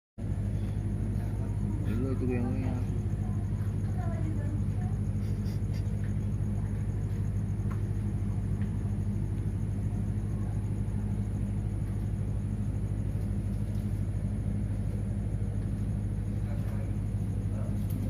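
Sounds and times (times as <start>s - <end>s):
low machine hum: 0.2s - 18.0s.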